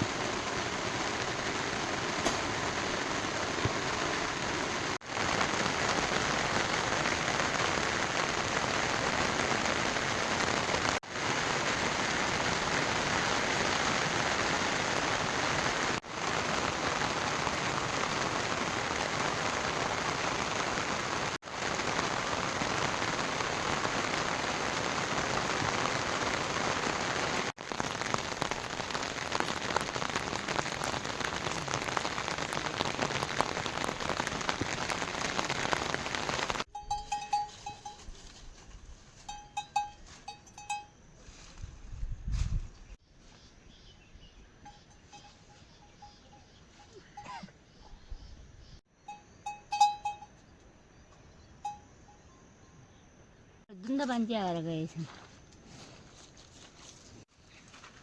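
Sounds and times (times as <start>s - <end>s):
heavy rain hissing: 0.0s - 36.7s
single raindrop taps: 2.2s - 2.6s.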